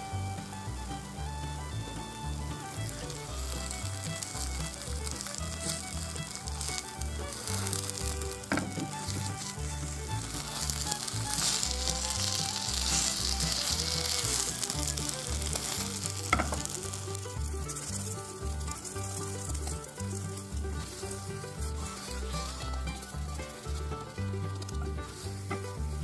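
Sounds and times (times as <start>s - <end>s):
batter sizzling in oil: 0.4s - 24.2s
spatula tapping pan: 3.1s - 24.2s
spatula scraping pan: 5.1s - 24.1s.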